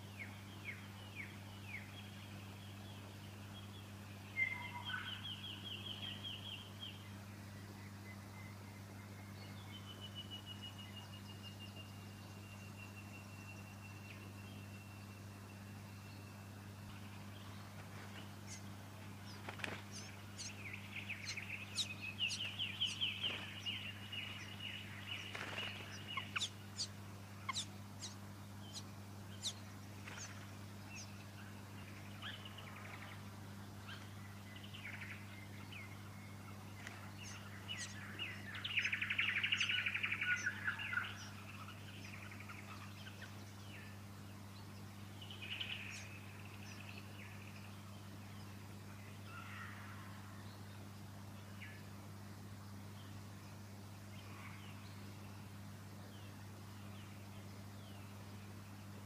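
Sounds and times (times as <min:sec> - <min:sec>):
steady low hum: 0:00.0 - 0:59.0
nestlings begging chirps: 0:15.6 - 0:47.1.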